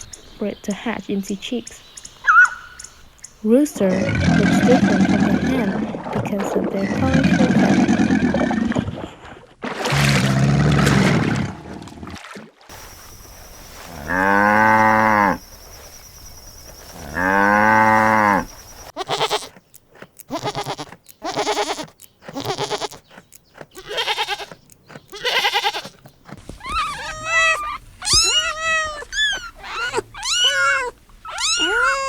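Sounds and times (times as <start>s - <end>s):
cow mooing: 14.0s - 15.4s, 17.0s - 18.5s
short choppy animal calls: 20.2s - 23.0s, 23.7s - 32.0s.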